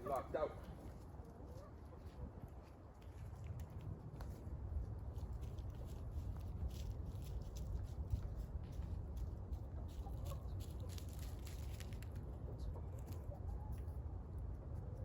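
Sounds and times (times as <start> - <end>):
chickens clucking softly: 0.8 - 2.7, 9.5 - 11.3, 12.1 - 15.0.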